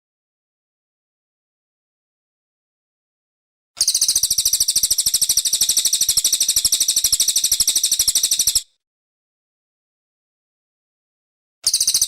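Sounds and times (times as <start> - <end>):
bird singing a dry trill: 3.8 - 8.8, 11.6 - 12.0.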